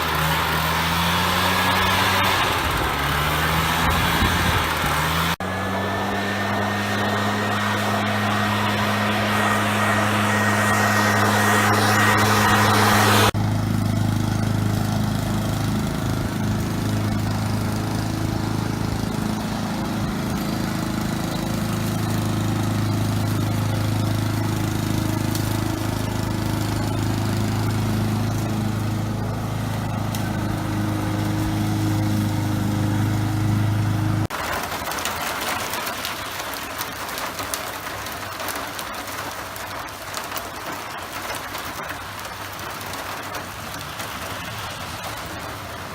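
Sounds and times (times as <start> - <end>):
engine running steadily: 0.0 - 45.9
thin high whine: 5.4 - 13.4.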